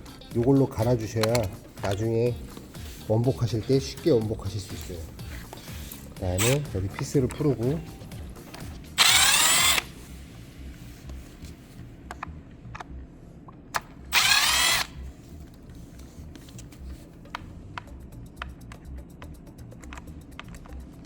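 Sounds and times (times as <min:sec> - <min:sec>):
power driver whirring: 0:00.0 - 0:10.1, 0:13.8 - 0:15.1.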